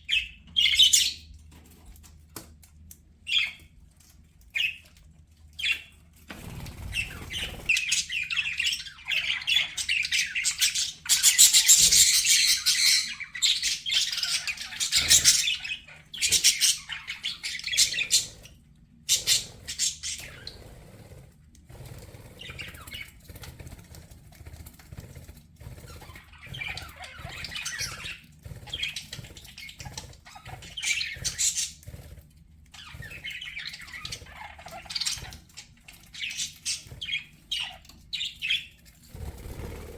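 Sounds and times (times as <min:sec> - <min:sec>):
budgerigars chattering and chirping: 0:00.1 - 0:01.3, 0:03.3 - 0:03.7, 0:06.6 - 0:21.1, 0:22.0 - 0:23.2, 0:25.6 - 0:32.2, 0:32.8 - 0:38.8.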